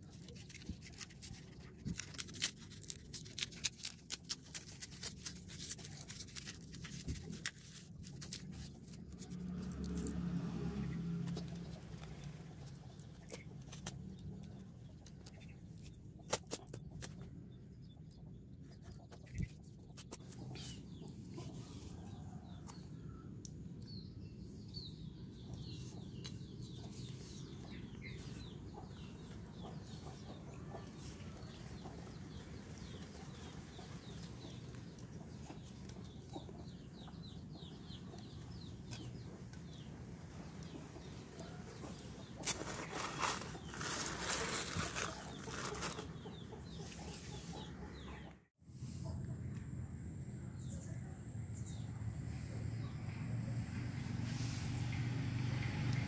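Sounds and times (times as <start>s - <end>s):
birds chirping: 8.5s - 48.5s.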